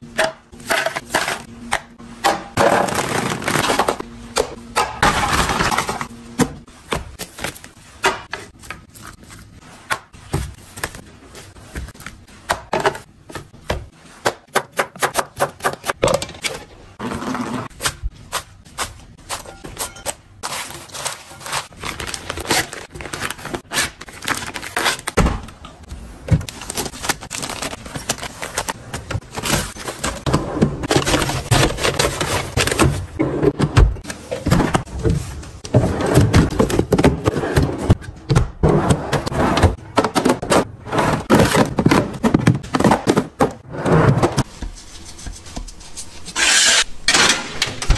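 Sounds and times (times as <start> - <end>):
utensils and containers clattering: 0.0 - 6.1, 26.4 - 44.5, 46.3 - 47.9.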